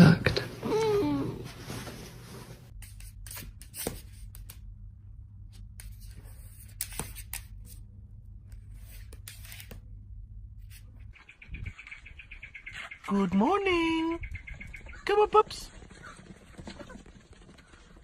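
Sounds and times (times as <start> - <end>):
steady low hum: 0.0 - 13.1
soft rustling: 0.3 - 2.7.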